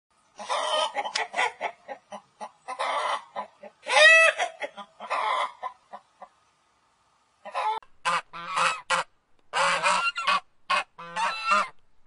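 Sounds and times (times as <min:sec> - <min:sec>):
chickens clucking: 0:00.4 - 0:06.4, 0:07.4 - 0:09.0
chicken squawking calls: 0:02.7 - 0:05.8, 0:07.4 - 0:09.0, 0:09.6 - 0:11.7.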